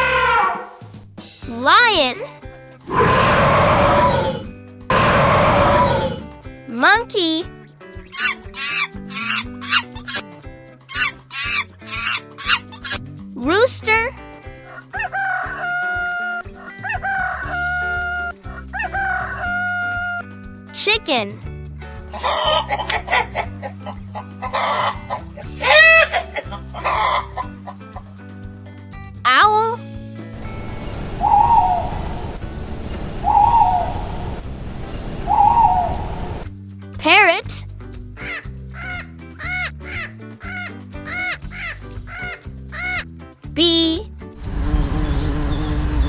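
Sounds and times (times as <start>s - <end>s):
light background music: 0.0s - 46.0s
owl hooting: 2.9s - 6.2s, 17.5s - 20.0s, 30.4s - 36.5s
rooster crowing: 2.9s - 6.2s, 17.1s - 20.1s, 30.4s - 36.4s.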